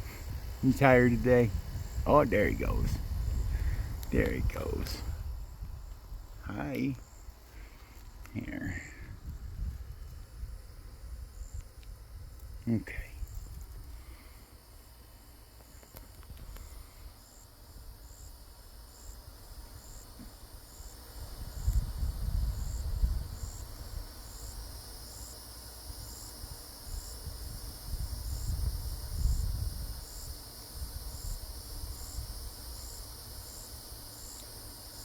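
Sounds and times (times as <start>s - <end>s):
low rumbling microphone noise: 0.0s - 14.4s
insect chirping: 0.0s - 35.0s.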